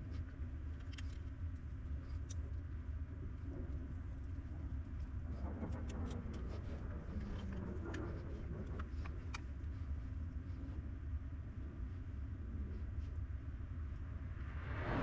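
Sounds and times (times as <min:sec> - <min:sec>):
steady low hum: 0:00.0 - 0:15.0
small parts clicking and tapping: 0:00.2 - 0:02.6.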